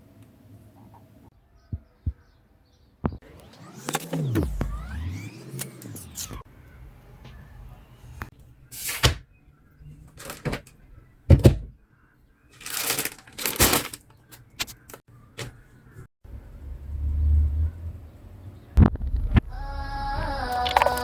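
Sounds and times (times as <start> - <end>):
handling rustles and clicks: 12.5 - 15.6
low rumble: 16.3 - 20.6.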